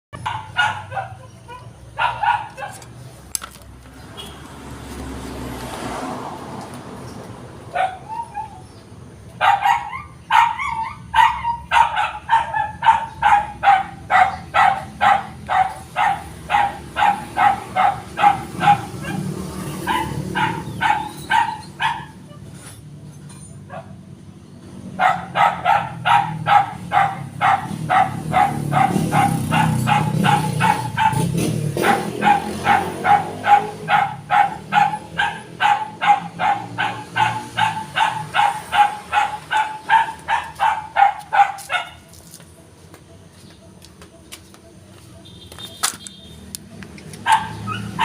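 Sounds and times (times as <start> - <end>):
dog barking: 0.2 - 2.8, 7.7 - 8.3, 9.4 - 22.3, 23.7 - 24.0, 25.0 - 42.1, 47.2 - 48.0.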